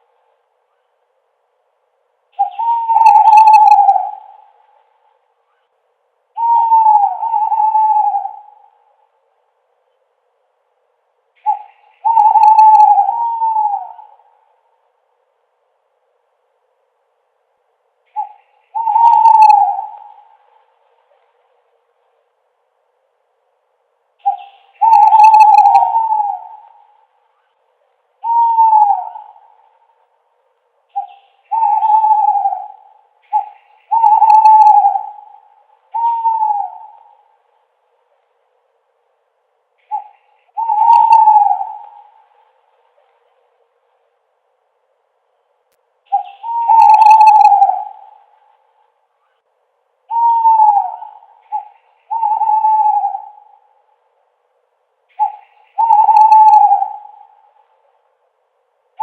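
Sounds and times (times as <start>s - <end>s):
owl hooting: 2.3s - 9.2s, 11.4s - 14.8s, 18.0s - 21.4s, 24.2s - 30.2s, 30.9s - 37.8s, 39.8s - 43.2s, 46.1s - 49.5s, 50.1s - 54.1s, 55.1s - 58.0s.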